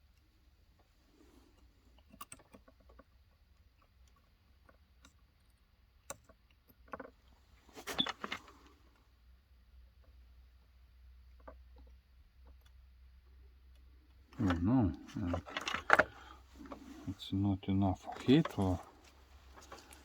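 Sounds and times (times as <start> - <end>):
rattling clicks: 14.3 - 17.2, 18.0 - 20.0
small metal parts clattering: 14.4 - 17.0.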